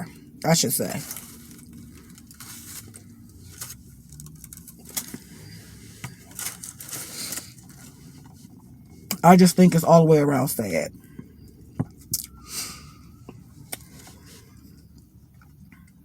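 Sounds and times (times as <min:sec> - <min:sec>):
low steady hum: 0:00.0 - 0:16.0
faint rustling: 0:00.8 - 0:09.1.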